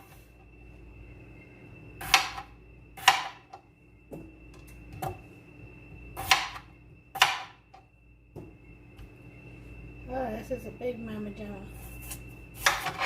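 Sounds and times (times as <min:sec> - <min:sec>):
knife chopping on cutting board: 0:03.0 - 0:03.4, 0:06.2 - 0:06.6, 0:07.2 - 0:07.5, 0:12.6 - 0:13.0.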